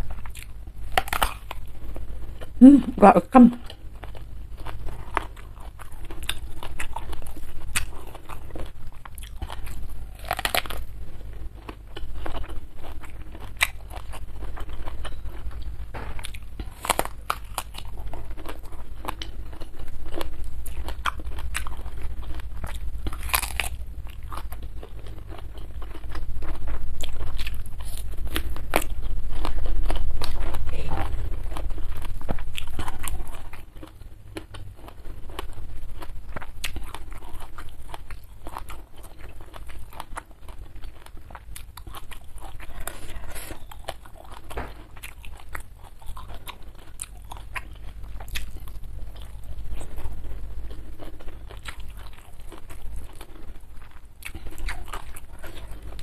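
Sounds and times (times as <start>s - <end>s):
crunching raw vegetables: 0.0s - 2.6s, 3.4s - 56.0s
wet chewing: 3.4s - 56.0s.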